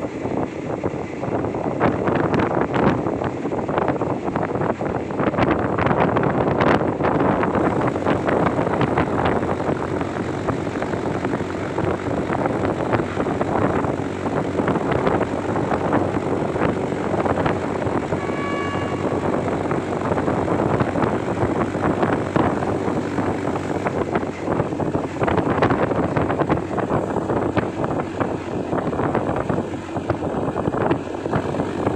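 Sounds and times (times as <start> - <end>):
train rumbling on rails: 0.0 - 31.9
brief high tone: 18.1 - 20.0
wheels clattering on track: 19.0 - 31.9.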